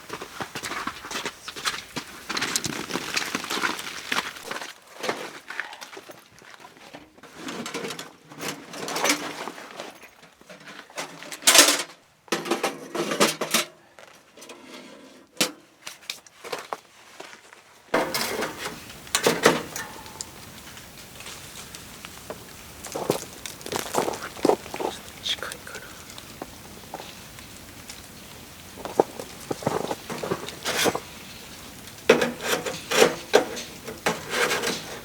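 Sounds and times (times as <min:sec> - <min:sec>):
rustling: 0:00.0 - 0:05.8, 0:15.8 - 0:35.0.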